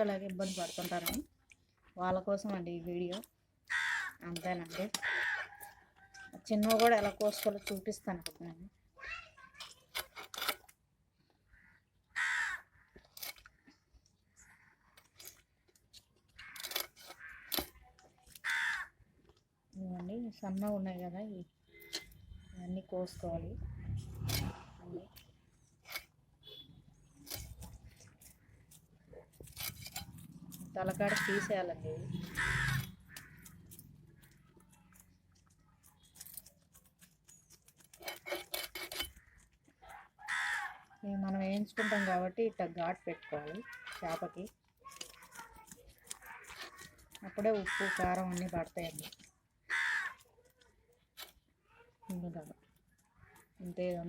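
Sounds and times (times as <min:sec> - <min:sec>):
crow cawing: 0:03.7 - 0:04.2, 0:05.0 - 0:05.6, 0:11.5 - 0:13.0, 0:16.4 - 0:17.7, 0:18.4 - 0:19.0, 0:31.1 - 0:31.6, 0:32.2 - 0:33.7, 0:40.2 - 0:40.9, 0:41.8 - 0:42.2, 0:47.3 - 0:48.2, 0:49.6 - 0:50.2.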